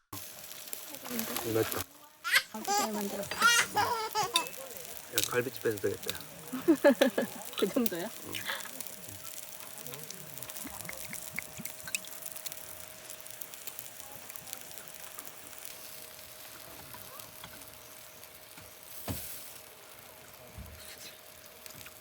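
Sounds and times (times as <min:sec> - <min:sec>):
ribs sizzling on a grill: 0:00.2 - 0:22.0.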